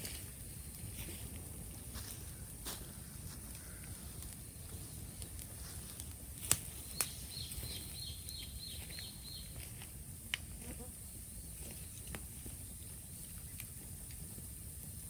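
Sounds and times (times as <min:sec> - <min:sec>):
bonfire pops and crackles: 0:00.0 - 0:15.0.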